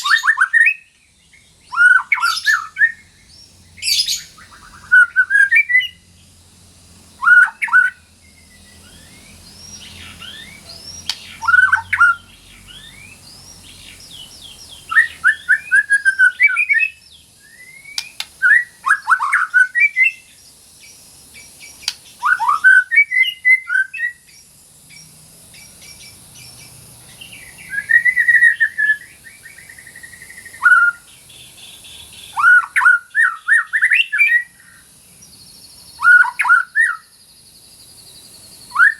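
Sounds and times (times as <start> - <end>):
bird singing whistled notes: 0.0 - 6.4, 7.2 - 38.9.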